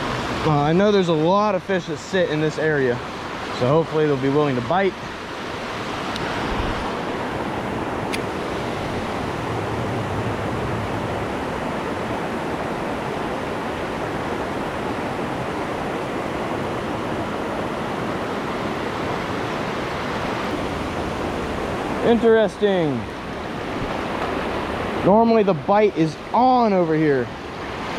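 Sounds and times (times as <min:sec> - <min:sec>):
waterfall roaring: 0:00.0 - 0:27.9
faint click: 0:08.1 - 0:08.3.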